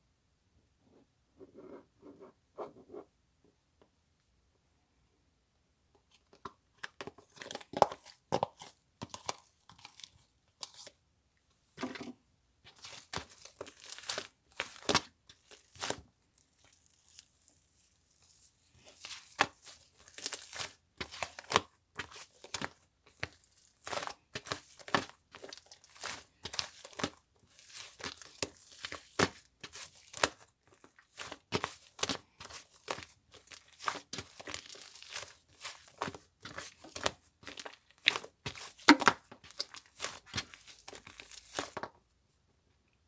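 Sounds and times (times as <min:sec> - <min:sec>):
wrapping crinkled and torn: 0:29.8 - 0:41.8.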